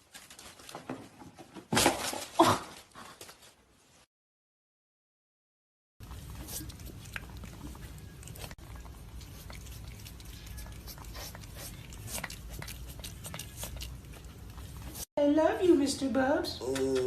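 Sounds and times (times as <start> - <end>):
pet chewing: 6.0 - 15.1.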